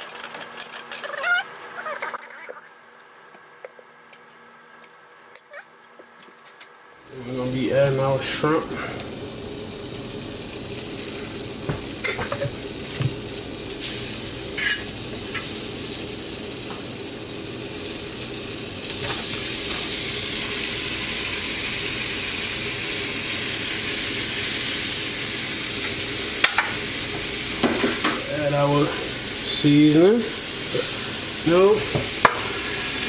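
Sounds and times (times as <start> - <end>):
shrimp sizzling in pan: 7.0 - 33.0
utensil knocking on pan: 31.8 - 32.5.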